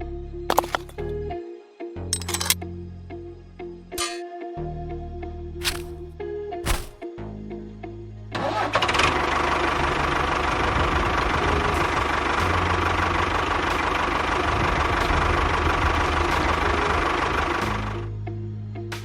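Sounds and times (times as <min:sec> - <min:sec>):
motor running with rattle: 0:00.5 - 0:01.1.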